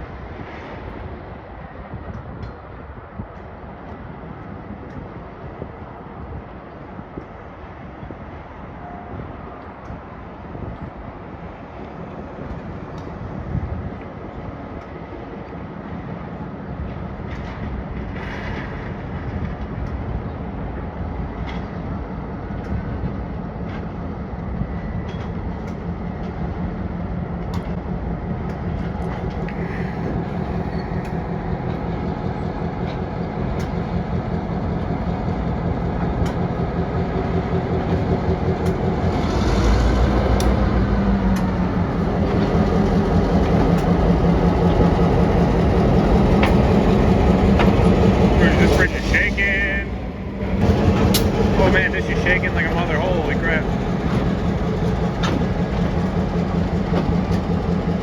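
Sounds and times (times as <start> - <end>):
diesel locomotive engine rumble: 0.0 - 58.0
clicks from train wheels: 21.3 - 34.1, 34.7 - 48.8, 50.4 - 51.7, 52.4 - 58.0.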